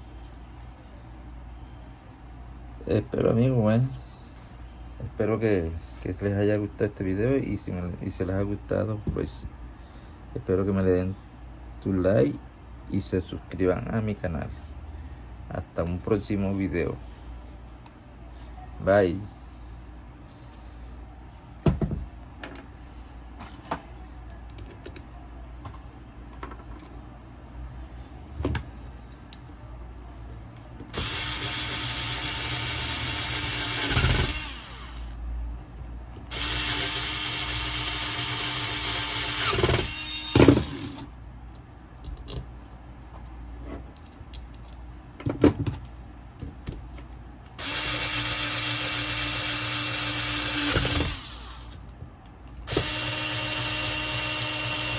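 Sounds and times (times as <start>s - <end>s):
angle grinder running: 31.0s - 35.1s, 36.3s - 41.0s, 47.6s - 51.8s, 52.7s - 54.9s.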